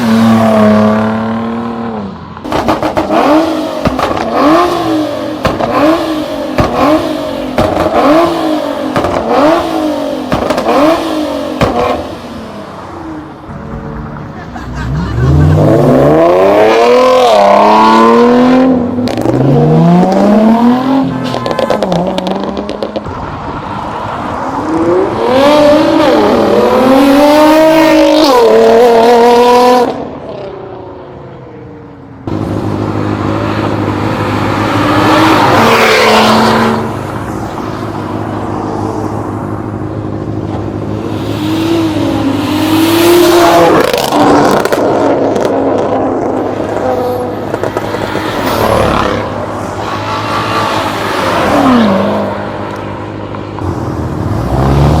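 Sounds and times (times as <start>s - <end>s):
cars accelerating hard: 0.0s - 30.8s, 32.2s - 55.0s.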